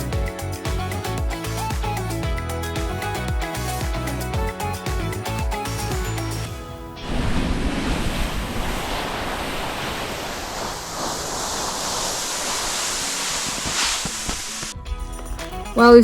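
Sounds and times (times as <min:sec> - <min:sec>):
background music: 0:00.0 - 0:07.0, 0:14.6 - 0:16.0
skis sliding over snow: 0:07.0 - 0:14.8
wind buffeting microphone: 0:07.0 - 0:15.1.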